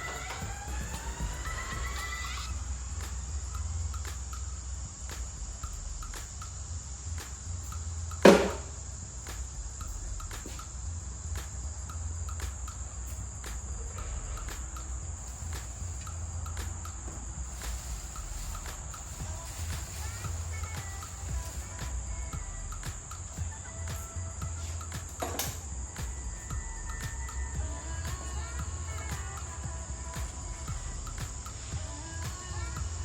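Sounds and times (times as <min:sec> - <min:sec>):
faint chirps: 0:00.0 - 0:33.0
steady low hum: 0:00.0 - 0:33.0
sharp loud knock: 0:08.3 - 0:08.7.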